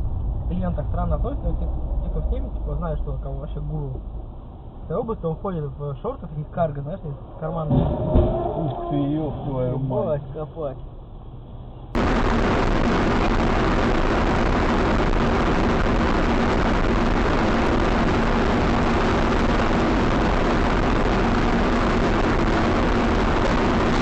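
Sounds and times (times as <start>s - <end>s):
faint low hum: 0.0s - 18.8s.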